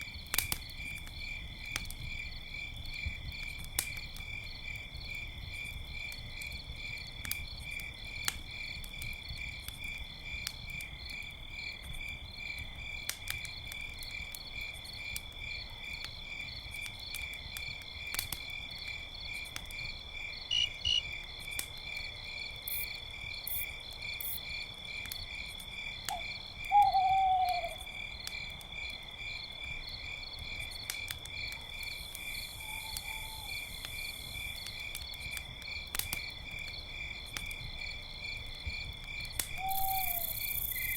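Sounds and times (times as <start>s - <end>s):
campfire crackling: 0.0s - 40.9s
crickets chirping: 17.3s - 40.9s
owl hooting: 26.1s - 27.8s, 32.6s - 33.6s, 39.6s - 40.4s.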